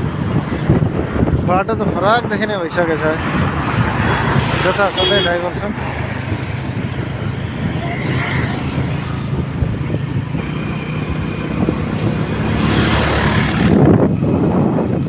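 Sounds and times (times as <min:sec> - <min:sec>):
road noise: 0:00.0 - 0:15.0
vehicle engine hum: 0:00.0 - 0:15.0
rushing swell: 0:02.7 - 0:14.0.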